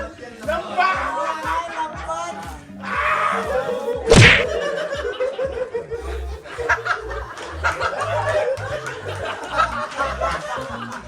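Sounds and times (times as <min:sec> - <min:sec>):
group of people laughing: 0:00.0 - 0:11.0
music with steady beat: 0:00.0 - 0:11.0
sharp smack: 0:04.1 - 0:04.6.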